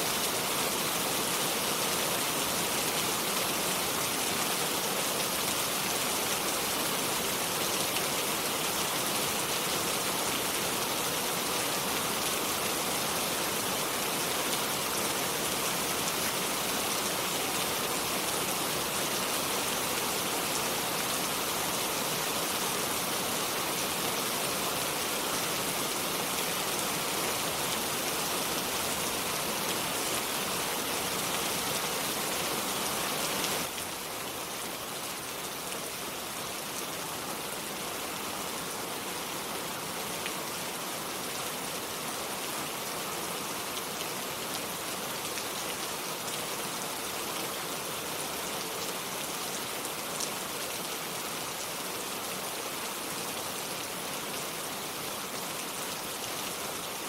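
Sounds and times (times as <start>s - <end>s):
steady rain on foliage: 0.0s - 57.0s.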